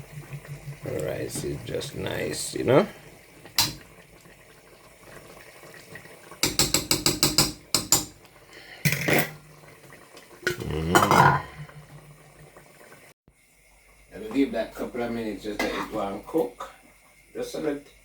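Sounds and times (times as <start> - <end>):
utensil tapping a pot: 6.4 - 8.2
utensil scraping a pot: 10.5 - 11.9.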